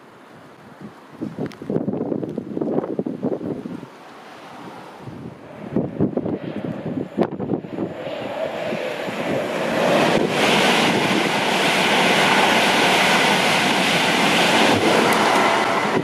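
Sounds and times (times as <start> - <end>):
wind buffeting microphone: 0.7 - 16.0
train passing at speed: 4.2 - 16.0.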